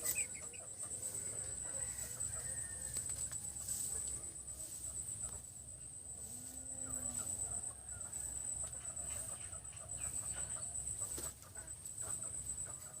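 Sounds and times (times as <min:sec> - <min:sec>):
chicks clucking and peeping: 0:00.0 - 0:13.0.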